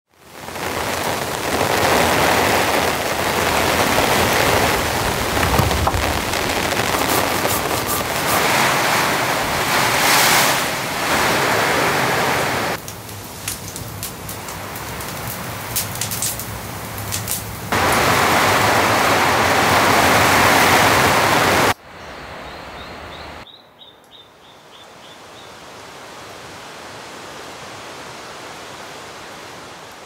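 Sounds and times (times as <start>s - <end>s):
heavy rain pouring: 0.1s - 21.8s
wood fire crackling: 0.2s - 9.0s, 12.7s - 18.6s.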